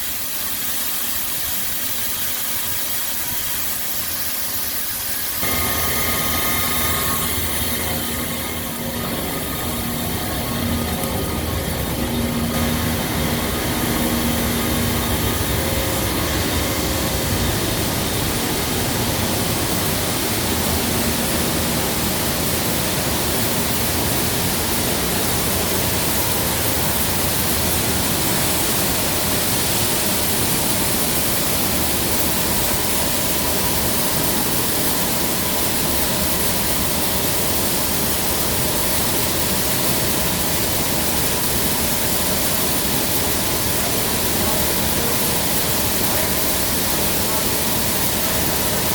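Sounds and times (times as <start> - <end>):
grain vacuum conveyor rushing: 0.1 - 48.9
low hum: 5.4 - 23.2.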